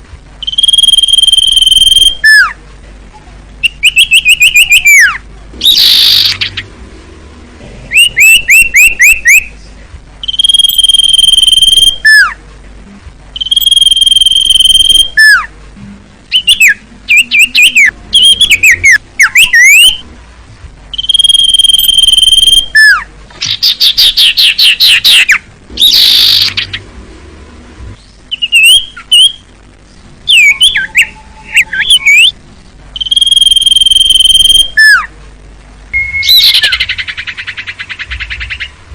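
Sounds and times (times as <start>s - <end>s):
bird song whistles and notes: 0.4s - 2.6s, 3.6s - 6.7s, 7.9s - 12.4s, 13.4s - 15.5s, 16.3s - 20.1s, 20.9s - 26.8s, 28.0s - 32.4s, 33.0s - 35.1s, 36.0s - 38.8s.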